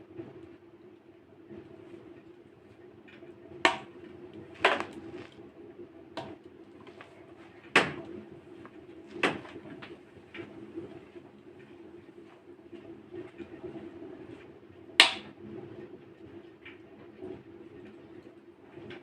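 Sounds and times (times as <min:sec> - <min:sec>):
wood fire crackling: 0:03.7 - 0:05.6, 0:06.2 - 0:11.2.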